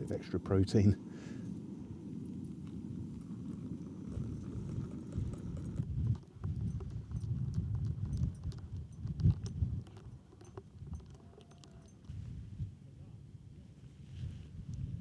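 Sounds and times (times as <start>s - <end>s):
wind buffeting microphone: 0.0s - 11.2s, 14.1s - 15.0s
faint scattered clicks: 2.3s - 12.4s.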